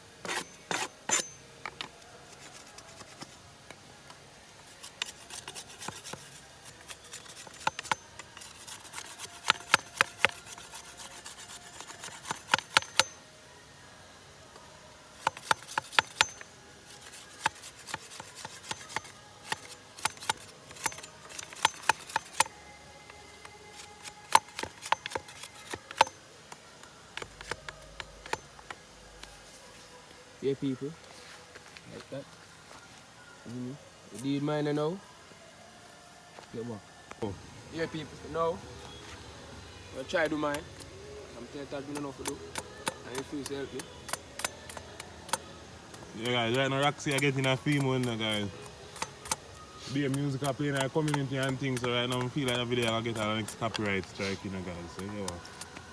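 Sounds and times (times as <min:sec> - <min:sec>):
hand tool scraping wood: 0:00.2 - 0:03.4, 0:04.5 - 0:13.2, 0:15.2 - 0:29.6, 0:38.8 - 0:55.9.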